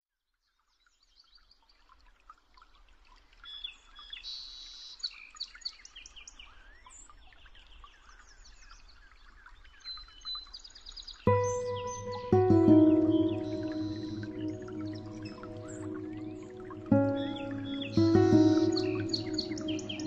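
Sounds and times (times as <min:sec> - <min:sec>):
birds chirping and whistling: 0:11.3 - 0:20.0.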